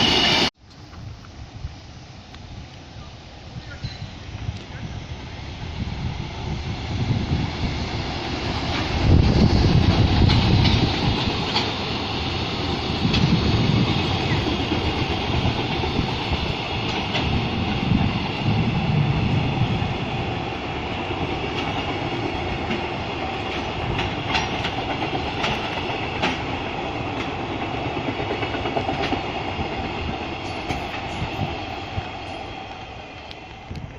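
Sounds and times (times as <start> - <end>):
train low rumble: 0.0 - 33.9
wheels clicking over rail joints: 8.5 - 18.6, 20.7 - 31.5.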